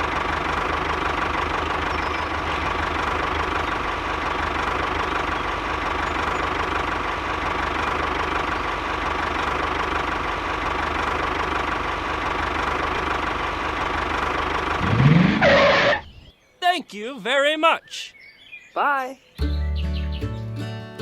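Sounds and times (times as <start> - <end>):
small engine idling with knocking: 0.0 - 16.0.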